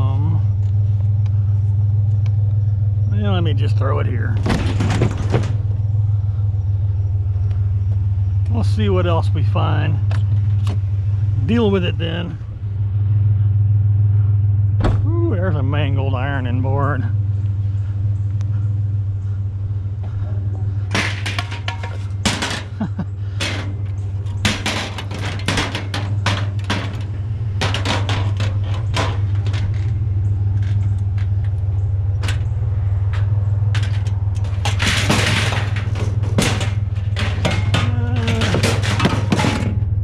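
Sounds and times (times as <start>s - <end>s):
truck engine idling: 0.0s - 40.0s
metal scraping clatter: 3.1s - 6.9s, 20.1s - 40.0s
metal ironing board clanking: 20.9s - 30.0s, 32.2s - 40.0s.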